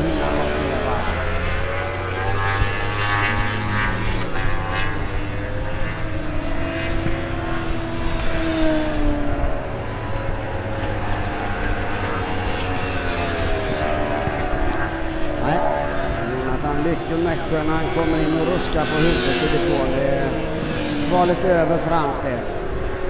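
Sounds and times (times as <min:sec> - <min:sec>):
motorbike engines running hard: 0:00.0 - 0:23.0.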